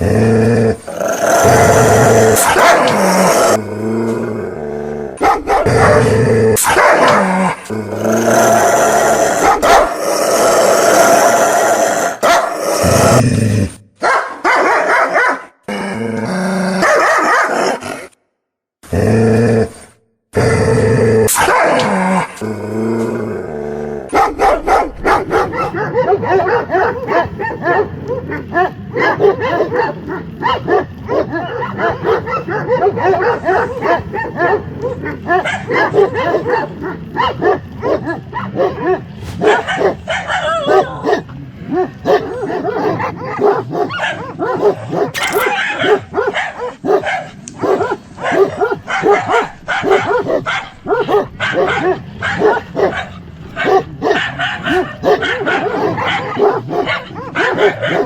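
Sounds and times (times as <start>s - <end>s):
dogs growling: 0.0s - 13.8s, 18.8s - 58.0s
dogs barking: 1.4s - 3.6s, 5.2s - 7.6s, 9.2s - 10.0s, 12.2s - 12.6s, 14.0s - 15.6s, 16.8s - 17.7s, 21.3s - 22.3s, 24.1s - 58.0s
dogs yipping: 24.2s - 58.0s.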